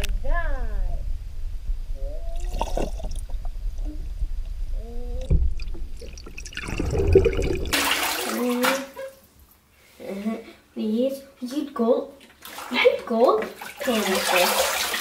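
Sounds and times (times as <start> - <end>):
dull low rumble: 0.0 - 7.8
muffled underwater sloshing and bubbling: 2.0 - 7.8
loud rushing water splash: 5.6 - 8.4.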